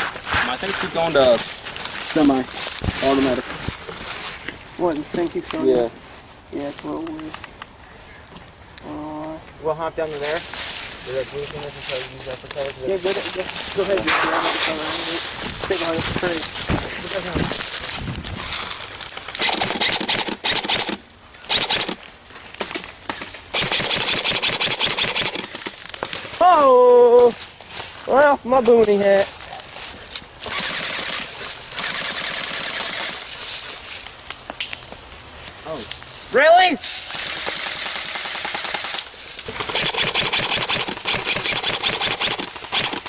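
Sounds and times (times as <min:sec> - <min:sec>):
steady hiss: 0:00.0 - 0:43.0
airsoft gun firing bursts: 0:19.2 - 0:22.0, 0:23.5 - 0:25.5, 0:30.5 - 0:33.3, 0:37.1 - 0:43.0.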